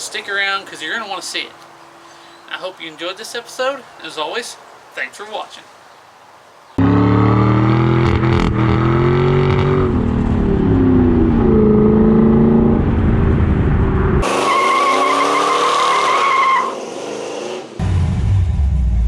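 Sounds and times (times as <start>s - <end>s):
car engine revving: 6.8s - 19.0s.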